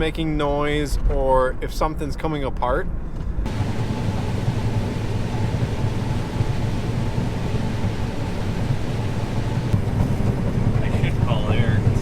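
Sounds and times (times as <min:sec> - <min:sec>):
combine harvester droning: 0:03.5 - 0:12.0.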